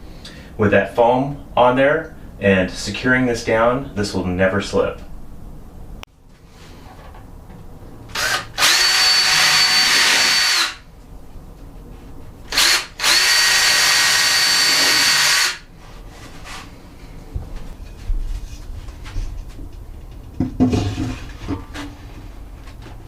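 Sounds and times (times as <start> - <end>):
power drill running: 8.1 - 10.8, 12.5 - 15.7.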